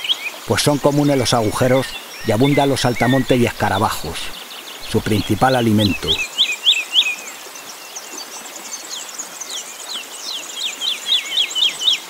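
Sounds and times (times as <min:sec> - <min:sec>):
faint high chirping: 0:00.0 - 0:06.3
songbird singing falling notes: 0:00.6 - 0:06.3.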